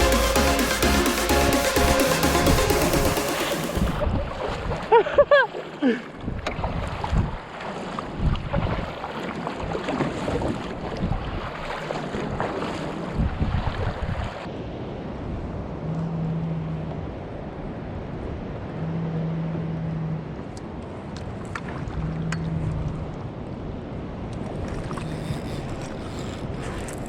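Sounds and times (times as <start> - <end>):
sea water washing: 0.0 - 14.5
wind buffeting microphone: 6.2 - 27.0.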